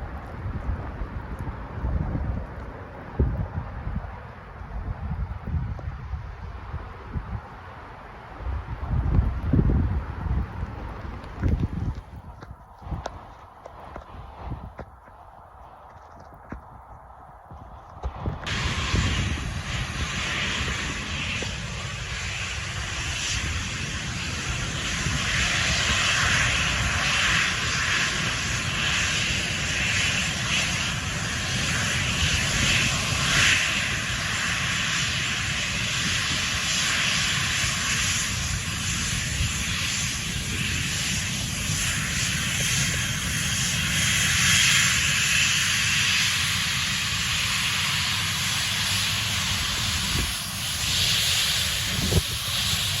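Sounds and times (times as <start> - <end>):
low rumble: 0.0 - 27.0
airliner engines running: 0.0 - 53.0.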